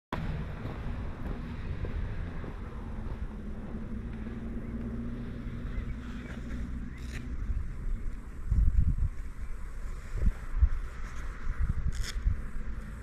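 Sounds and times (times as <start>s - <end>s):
motorcycle engine running: 0.2s - 9.2s
wind buffeting microphone: 0.2s - 13.0s.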